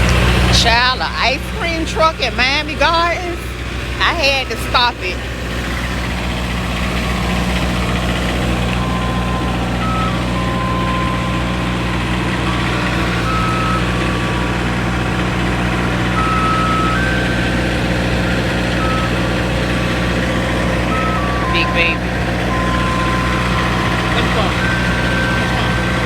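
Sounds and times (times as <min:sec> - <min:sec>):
truck engine idling: 0:00.0 - 0:26.0
electronic jingle beeping melody: 0:08.7 - 0:26.0.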